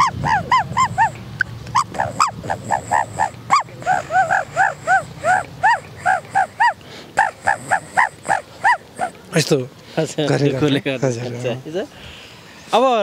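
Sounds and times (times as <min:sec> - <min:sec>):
man imitating dove call: 0:00.0 - 0:09.3.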